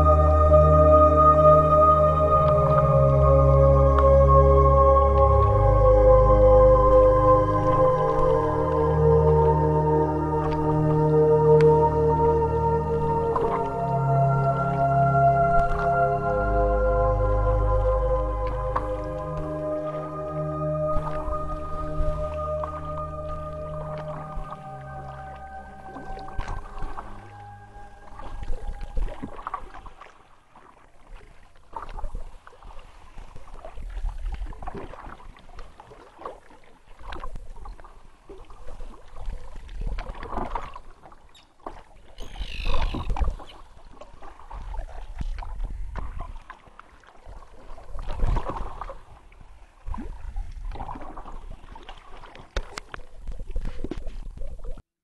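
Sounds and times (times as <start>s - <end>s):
low rumble: 0.0s - 30.0s
paddle splashing in water: 0.0s - 54.8s.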